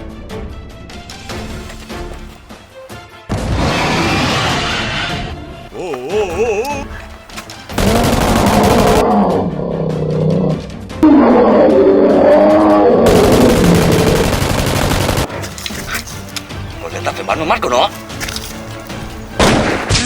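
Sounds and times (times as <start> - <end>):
monster roars: 3.6 - 4.8, 7.8 - 14.3.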